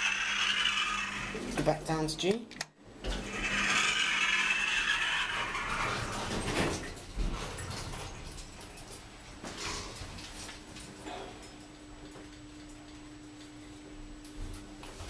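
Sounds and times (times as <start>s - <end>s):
lift car running: 0.0s - 1.6s, 3.0s - 6.8s.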